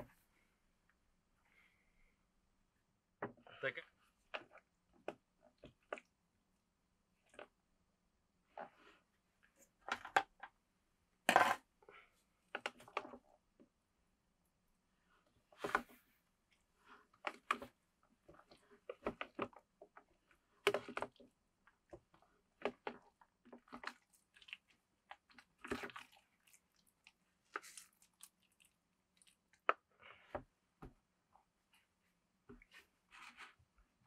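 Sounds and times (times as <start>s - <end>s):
person chewing and crunching: 22.7s - 29.6s.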